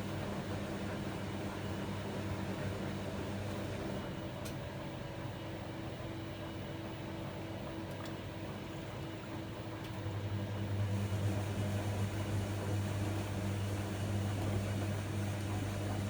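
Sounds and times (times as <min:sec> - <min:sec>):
washing machine running: 0:00.0 - 0:16.0
pump motor hum: 0:05.6 - 0:16.0.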